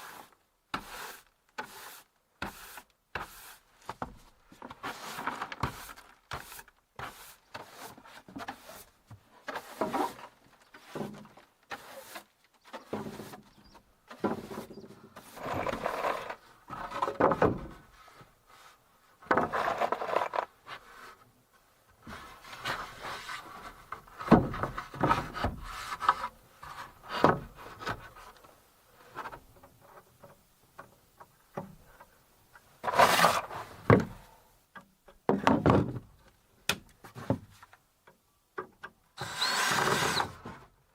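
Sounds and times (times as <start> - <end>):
wood scraping and rubbing: 0.8 - 21.2, 22.0 - 30.4, 32.8 - 34.2, 39.2 - 40.7.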